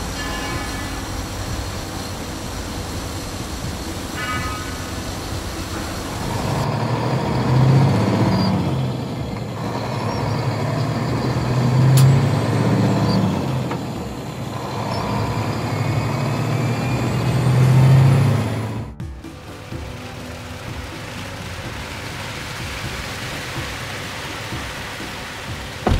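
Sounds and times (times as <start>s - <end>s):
low engine note: 0.0s - 25.9s.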